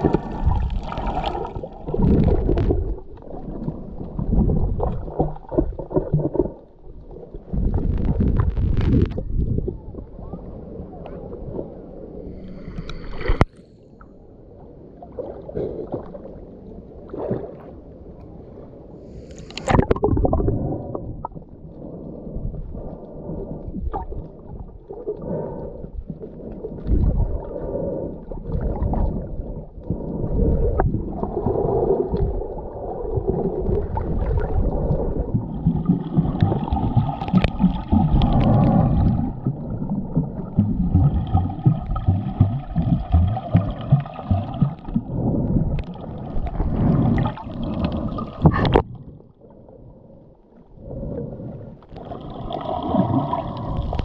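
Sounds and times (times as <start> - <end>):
gurgling exhaust bubbles: 0.0 - 6.7, 19.7 - 21.4, 26.8 - 48.9
low muffled rumble: 0.0 - 13.5
regulator breaths underwater: 12.2 - 14.0, 25.1 - 32.9, 34.6 - 39.6, 49.5 - 54.0.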